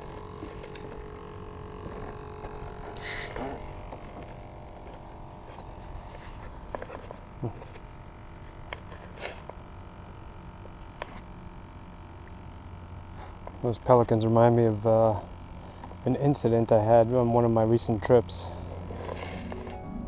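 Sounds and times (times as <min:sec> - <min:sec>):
boat motor running: 0:00.0 - 0:08.0.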